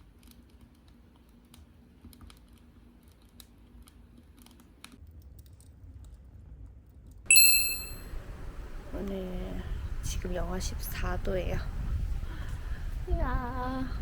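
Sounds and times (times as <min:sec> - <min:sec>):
bright ringing chime: 0:07.3 - 0:08.2.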